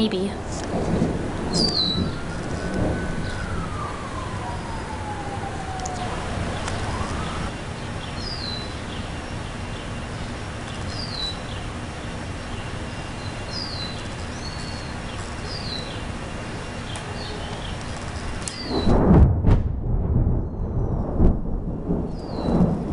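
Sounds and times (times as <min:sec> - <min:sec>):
low background noise: 0:00.0 - 0:18.8
loud thunderclap: 0:00.7 - 0:07.5, 0:18.6 - 0:22.9
siren: 0:01.1 - 0:09.2.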